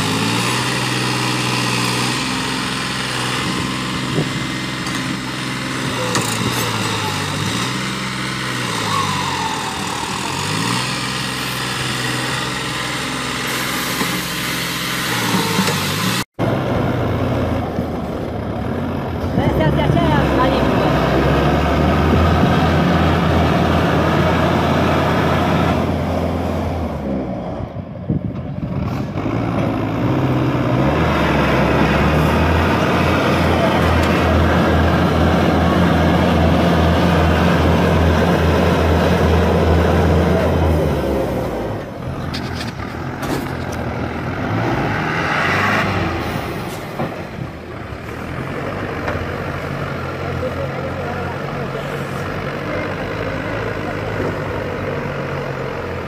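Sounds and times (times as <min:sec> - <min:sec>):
tractor diesel engine running: 0:00.0 - 0:56.0
loud hiss: 0:13.4 - 0:16.1.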